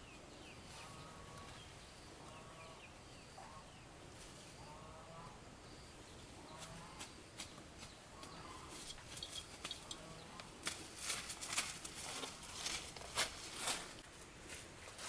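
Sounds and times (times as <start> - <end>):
faint farm animal calls: 0.0 - 11.1, 12.0 - 13.8
rustling: 7.4 - 15.0.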